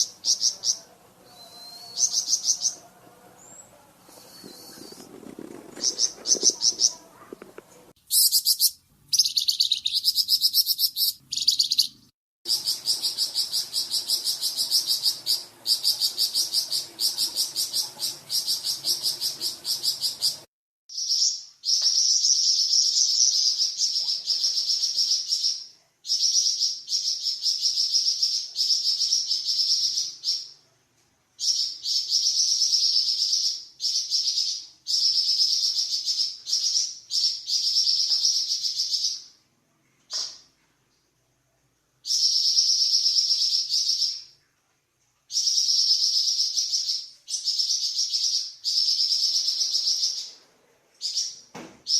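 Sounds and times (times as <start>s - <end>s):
songbird high-pitched trills: 8.1s - 20.4s.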